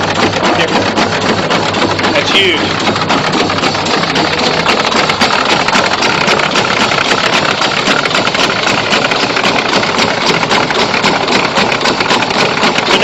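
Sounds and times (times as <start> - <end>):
engine-driven pump running: 0.0 - 13.0.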